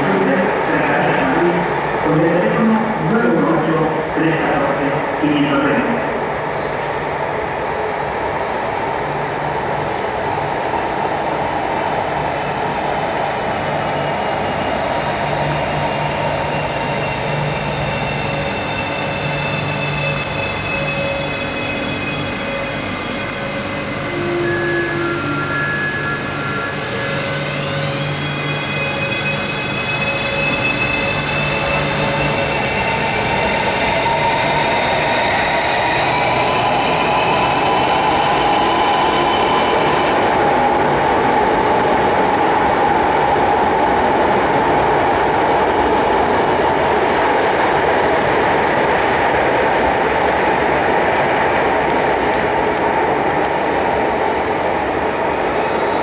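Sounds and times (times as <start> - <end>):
electric train running noise: 6.2 - 56.0
traction motors whining: 16.6 - 40.9.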